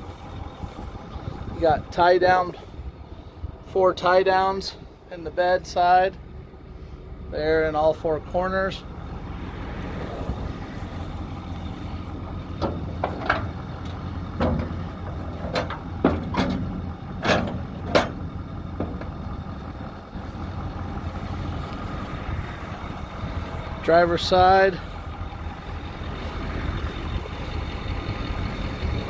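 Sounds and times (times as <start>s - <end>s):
diesel engine idling: 0.0s - 29.0s
sharp knocks and clicks: 12.5s - 19.3s.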